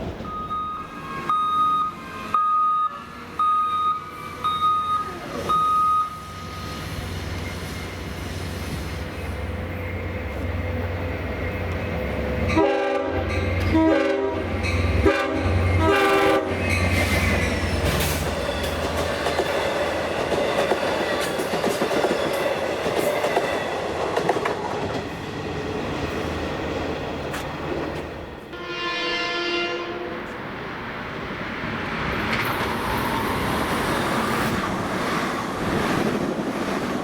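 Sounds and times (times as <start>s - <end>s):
train rumbling past: 3.0s - 37.0s
train horn blasts: 12.5s - 16.6s, 28.5s - 30.4s
clicking train wheels: 14.5s - 26.3s, 31.9s - 37.0s.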